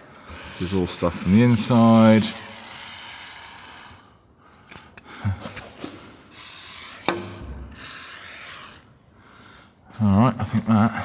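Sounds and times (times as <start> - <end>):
aerosol can spraying: 0.2 - 4.0, 6.3 - 8.8
sharp clicks and knocks: 7.1 - 7.7.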